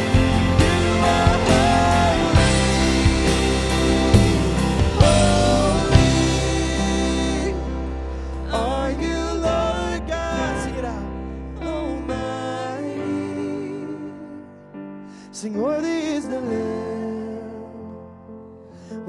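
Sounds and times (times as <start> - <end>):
worship band music with drums: 0.0 - 8.8
person singing: 0.0 - 11.0
soft held chords: 0.0 - 11.6.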